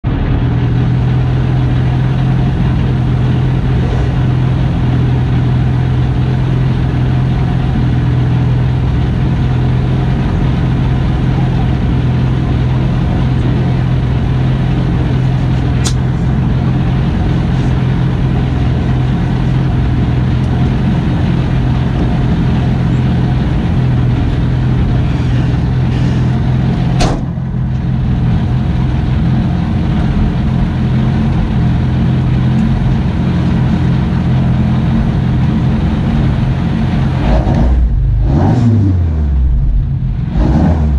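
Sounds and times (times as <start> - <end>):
car engine idling: 0.0 - 40.9
sharp click: 15.8 - 16.1.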